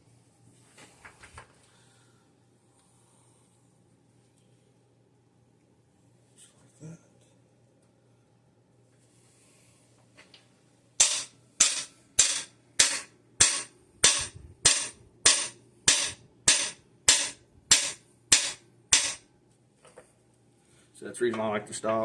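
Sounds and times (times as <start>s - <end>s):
hammer striking metal tool: 11.0s - 19.2s.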